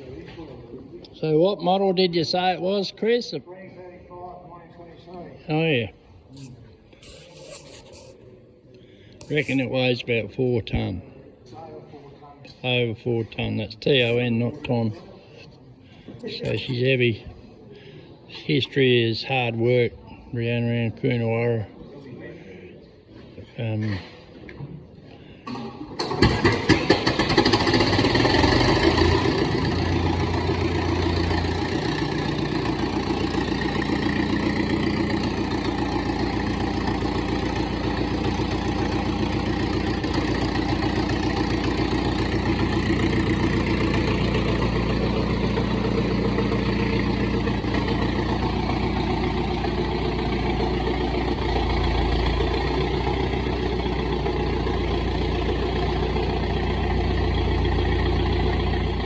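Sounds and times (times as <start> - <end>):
tractor engine idling: 25.5 - 59.0.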